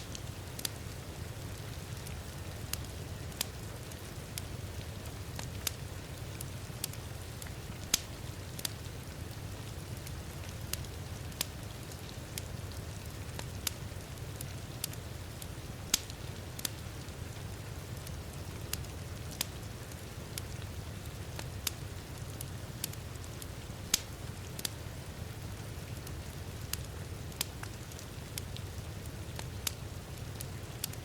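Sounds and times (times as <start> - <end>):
wood fire crackling and popping: 0.0 - 31.0.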